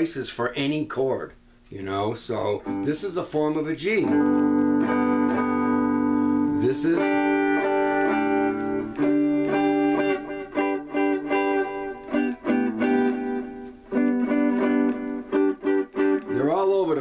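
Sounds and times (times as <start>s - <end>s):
clean electric guitar: 2.6s - 17.0s.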